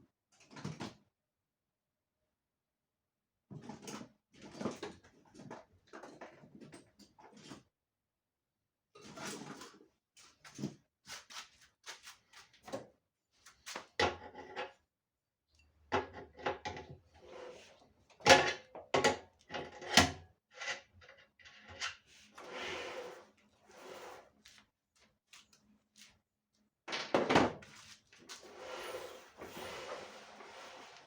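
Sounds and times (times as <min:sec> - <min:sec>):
sliding scraping sound: 0:22.1 - 0:24.6, 0:27.7 - 0:31.0
knocks and rattles of dryer parts: 0:26.9 - 0:27.7.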